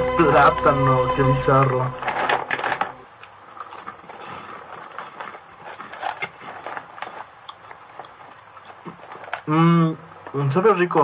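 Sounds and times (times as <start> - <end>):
chewing crunchy puffed snack: 2.6 - 10.5.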